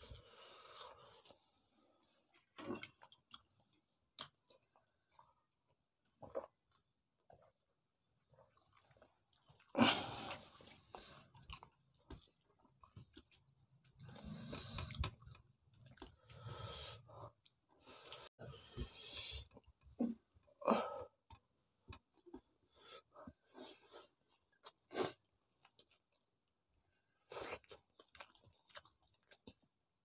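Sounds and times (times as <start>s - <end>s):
people chewing wet mouth sounds: 8.3s - 16.5s, 27.2s - 30.0s.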